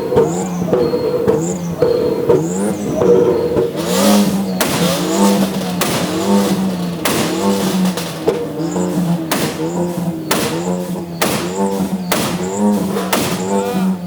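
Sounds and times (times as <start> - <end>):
car engine revving: 0.0 - 14.0
sharp cracks: 3.5 - 14.0
loud rush of noise: 3.8 - 10.6.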